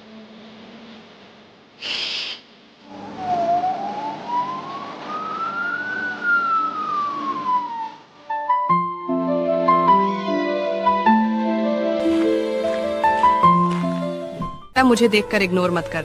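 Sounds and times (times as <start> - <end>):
hissing whoosh: 1.8 - 8.1
siren-like high tone: 2.8 - 9.0
busy sound effects or music: 2.9 - 16.0.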